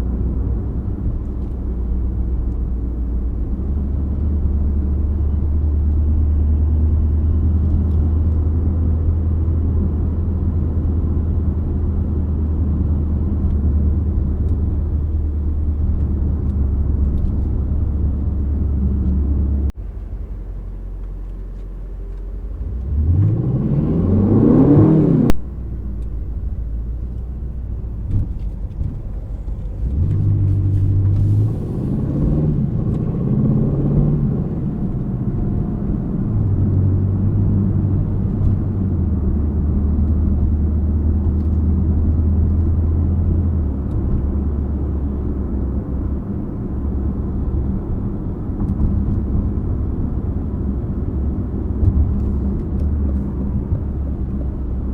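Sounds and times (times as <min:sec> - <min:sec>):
car engine revving: 0:22.2 - 0:54.9.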